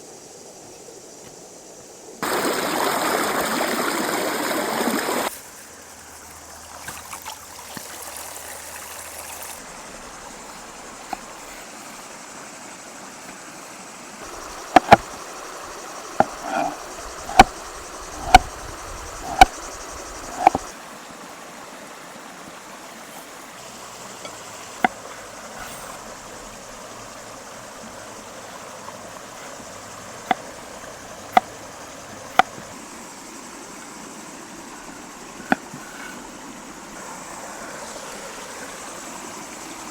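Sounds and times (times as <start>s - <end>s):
flowing water: 2.0s - 39.9s
sharp knocks: 14.4s - 15.2s, 16.2s - 17.6s, 18.2s - 18.5s, 19.2s - 19.6s, 20.3s - 20.7s.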